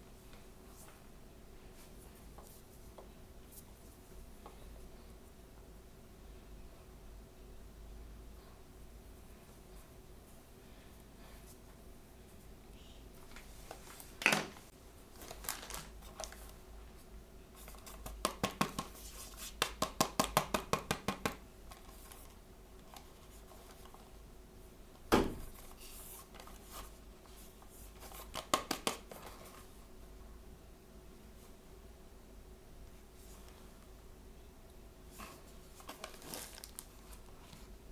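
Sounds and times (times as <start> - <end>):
toy packaging opened by hand: 15.2 - 16.5, 35.8 - 37.2.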